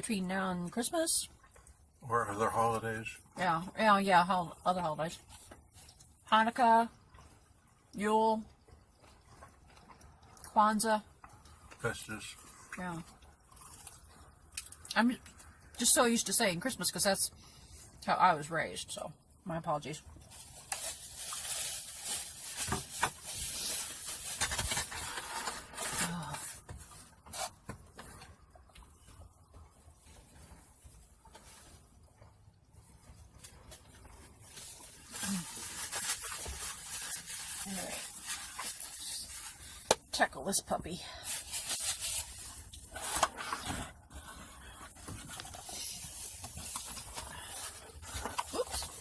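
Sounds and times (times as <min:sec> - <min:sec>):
food packaging rustling: 0:20.2 - 0:28.5, 0:33.0 - 0:40.1, 0:41.2 - 0:49.0.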